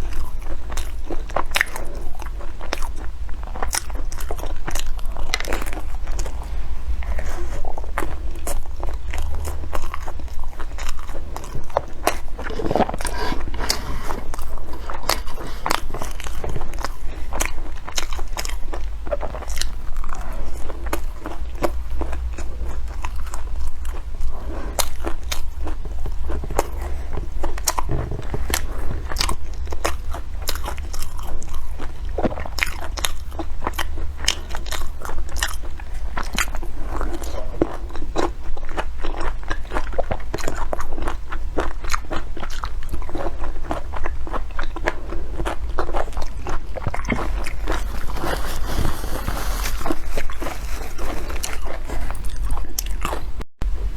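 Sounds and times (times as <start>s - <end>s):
person chewing with crisp crunches: 0.0s - 53.4s
steady low hum: 0.0s - 53.9s.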